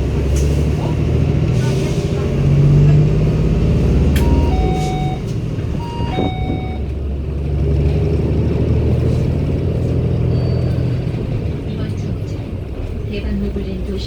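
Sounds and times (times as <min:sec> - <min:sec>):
bus diesel engine running: 0:00.0 - 0:14.0
two-note chime: 0:04.2 - 0:05.2.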